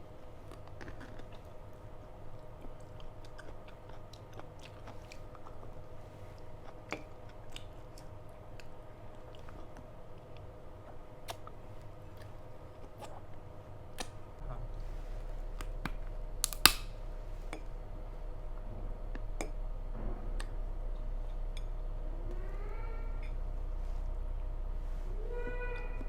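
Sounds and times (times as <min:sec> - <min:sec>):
loud sharp click: 0:16.4 - 0:16.9.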